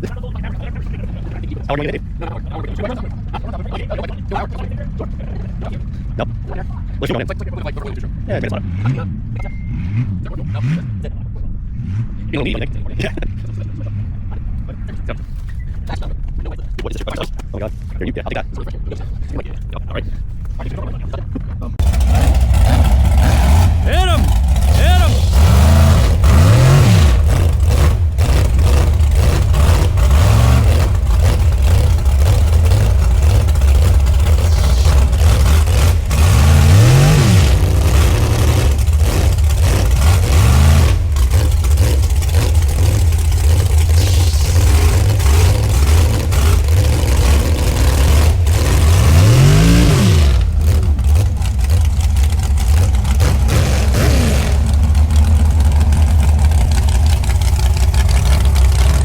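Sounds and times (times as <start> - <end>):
truck engine revving: 0.0 - 15.1, 21.7 - 59.0
knocks and rattles: 21.8 - 59.0.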